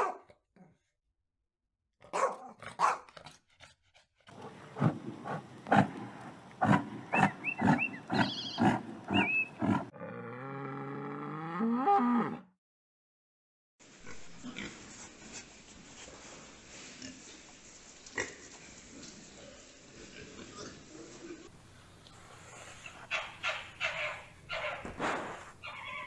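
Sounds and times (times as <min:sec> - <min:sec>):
bison bellowing: 0:04.4 - 0:12.4.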